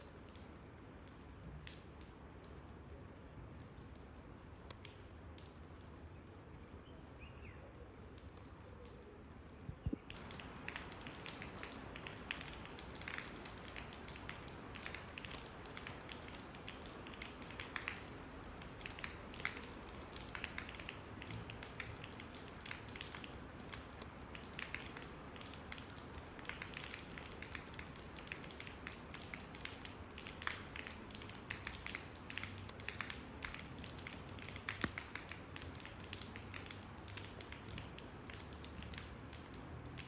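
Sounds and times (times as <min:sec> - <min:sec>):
rain falling: 0:00.0 - 0:40.0
raindrop ticks: 0:00.0 - 0:40.0.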